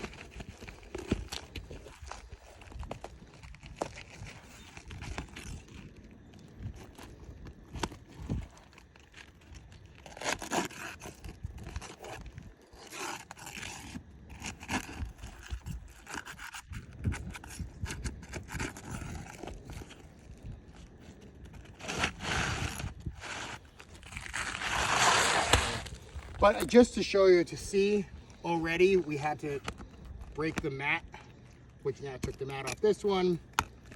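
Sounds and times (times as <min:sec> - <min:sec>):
roof shingles scraping and crackling: 0:00.0 - 0:33.9
shingle tearing rasp: 0:07.0 - 0:30.9.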